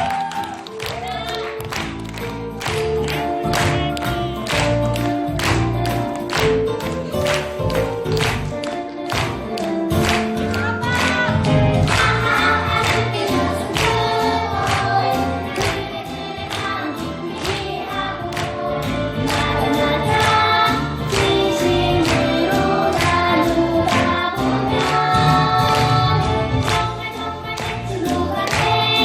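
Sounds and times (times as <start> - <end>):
instrumental accompaniment with beat: 0.0 - 29.0
children's choir singing: 10.6 - 29.0.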